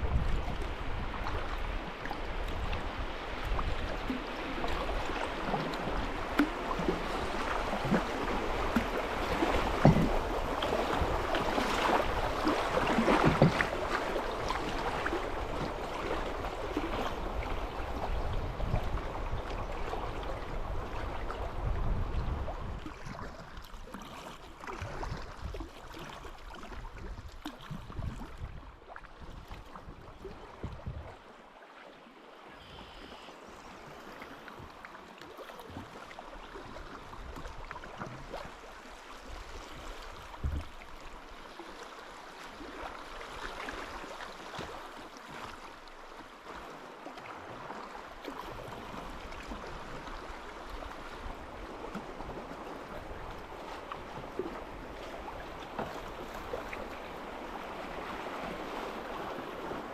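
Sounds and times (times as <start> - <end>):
river water rushing: 0.0 - 21.5.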